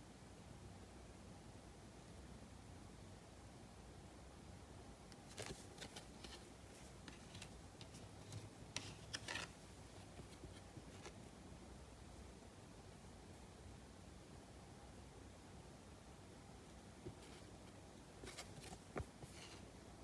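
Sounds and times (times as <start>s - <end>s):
trading cards clicking and rustling: 5.2s - 11.2s.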